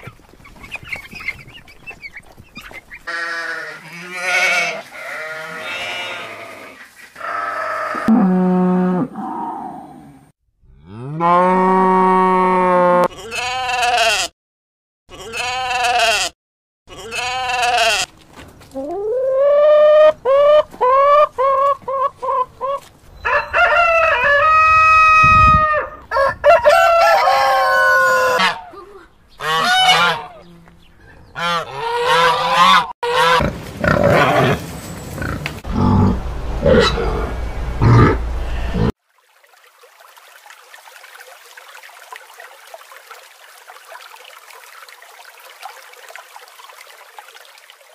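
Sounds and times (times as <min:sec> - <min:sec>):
hens clucking: 0:18.8 - 0:24.6
rooster crowing: 0:23.2 - 0:28.6
farm animal calls: 0:27.4 - 0:38.9.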